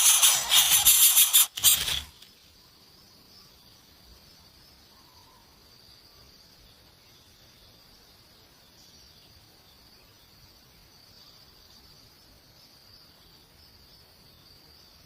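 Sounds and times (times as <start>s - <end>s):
loud rustling and shaking: 0.0s - 2.2s
insects trilling: 0.0s - 8.0s.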